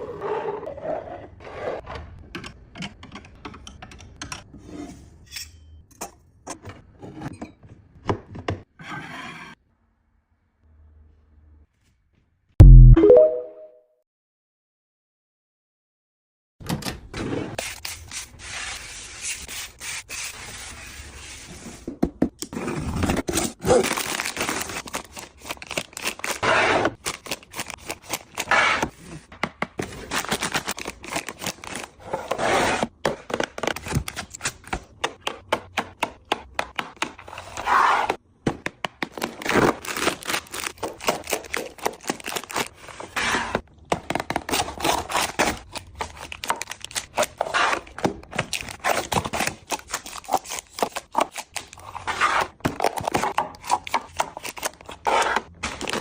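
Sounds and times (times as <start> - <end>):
food packages being handled: 23.2 - 35.0, 38.7 - 56.0
package rustling: 23.7 - 26.4, 29.8 - 32.0, 39.2 - 42.7, 44.4 - 52.0.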